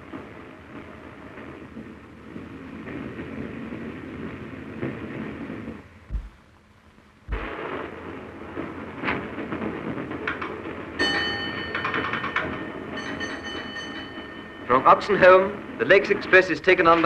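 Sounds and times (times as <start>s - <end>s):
low thump: 6.1s - 6.4s, 7.3s - 7.6s
train rumble and rail noise: 8.5s - 17.0s.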